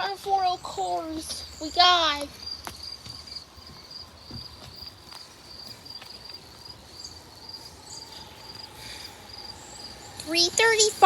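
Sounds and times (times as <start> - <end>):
insects chirping in pulsed trill: 2.4 - 11.0.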